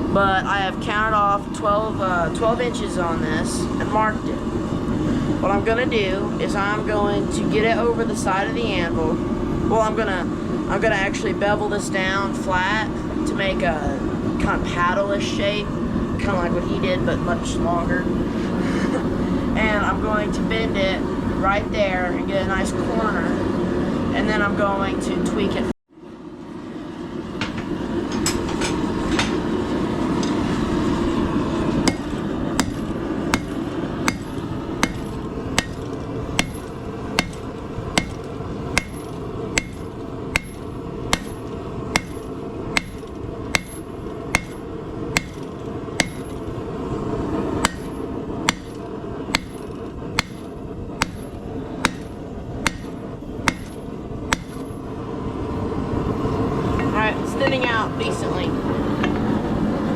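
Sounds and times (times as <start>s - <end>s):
low rush of noise: 0.0s - 59.9s
hammer ringing on anvil: 31.9s - 46.4s, 47.6s - 48.8s, 49.4s - 54.8s.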